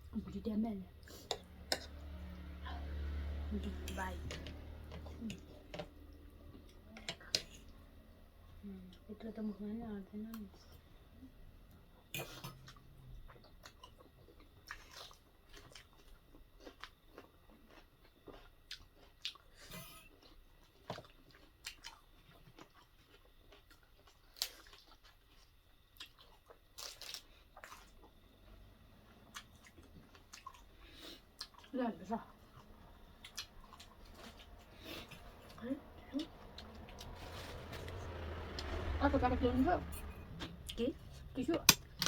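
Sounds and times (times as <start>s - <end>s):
biting and chewing food: 12.5s - 31.8s, 32.4s - 35.6s.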